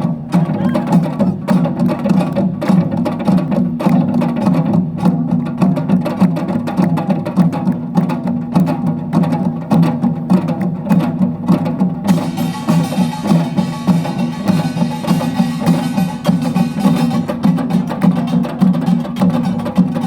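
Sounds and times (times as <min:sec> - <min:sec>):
drums struck in quick strokes: 0:04.4 - 0:20.0
metallic gong clatter: 0:12.1 - 0:20.0.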